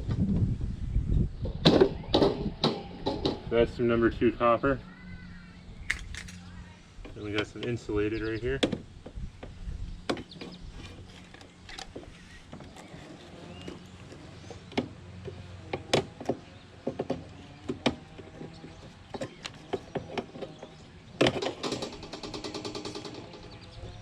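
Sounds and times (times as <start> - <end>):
hand tools clicking and clanking: 5.8 - 6.5, 10.1 - 23.8.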